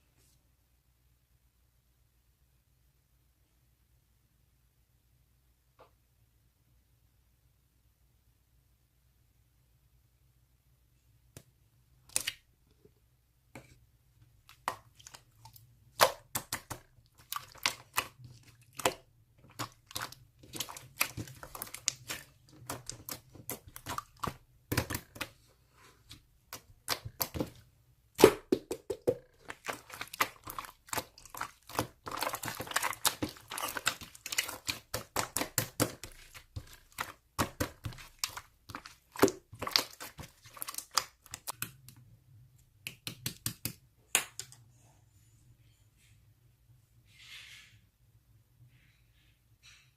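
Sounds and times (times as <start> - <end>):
slime squeezed by hand: 28.2 - 41.5.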